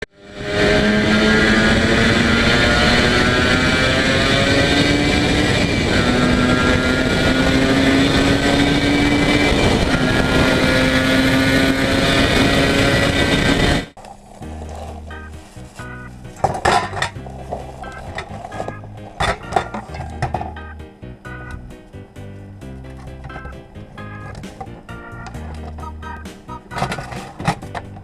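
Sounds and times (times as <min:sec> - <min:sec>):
motorcycle engine shifting gears: 0:00.4 - 0:20.6.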